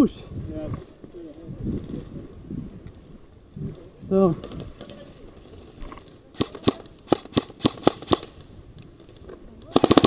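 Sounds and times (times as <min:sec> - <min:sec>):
airsoft gun single shots: 0:06.4 - 0:08.3
airsoft gun full-auto burst: 0:06.4 - 0:08.4, 0:09.7 - 0:10.0.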